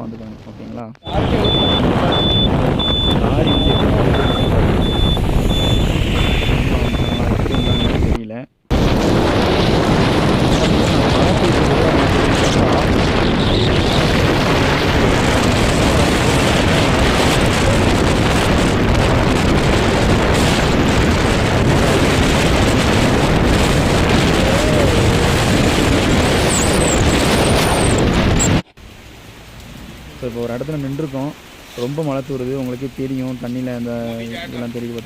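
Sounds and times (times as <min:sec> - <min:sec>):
road noise: 0:00.0 - 0:35.0
wind buffeting microphone: 0:01.0 - 0:28.7.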